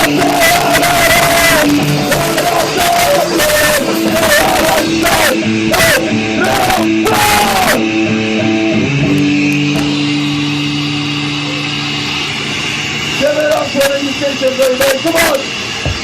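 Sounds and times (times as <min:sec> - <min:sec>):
guitar chord ringing out: 0:00.0 - 0:14.6
distorted electric guitar: 0:00.0 - 0:16.0
crashing drums: 0:15.8 - 0:16.0.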